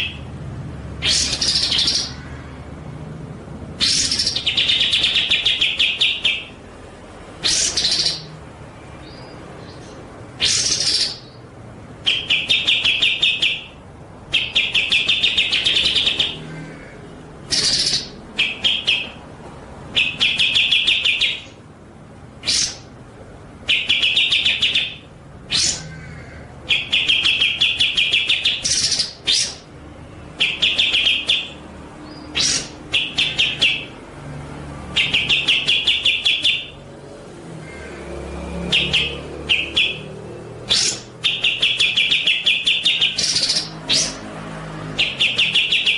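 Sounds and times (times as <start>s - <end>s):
songbird trilling: 0.0s - 0.3s, 1.0s - 2.4s, 3.8s - 6.7s, 7.4s - 8.4s, 9.0s - 16.6s, 17.4s - 19.3s, 19.9s - 21.6s, 22.4s - 23.0s, 23.6s - 29.7s, 30.3s - 34.1s, 34.9s - 36.9s, 38.6s - 44.3s, 45.0s - 45.9s.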